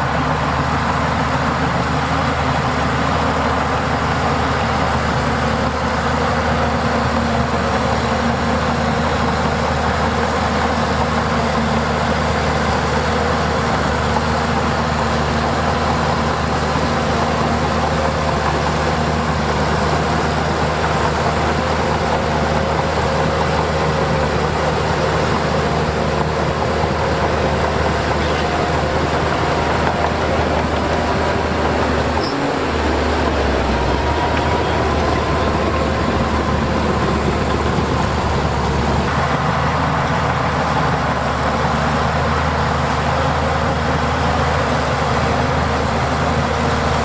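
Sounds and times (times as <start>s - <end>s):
heavy diesel engine running: 0.0s - 47.0s.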